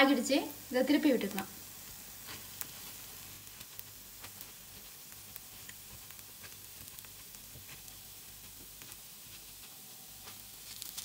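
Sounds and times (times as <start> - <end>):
faint frying sizzle: 0.0 - 11.0.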